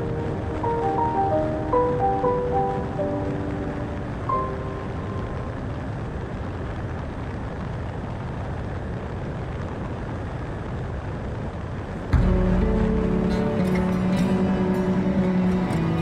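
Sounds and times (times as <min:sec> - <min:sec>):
music track: 0:00.0 - 0:06.8, 0:12.1 - 0:16.0.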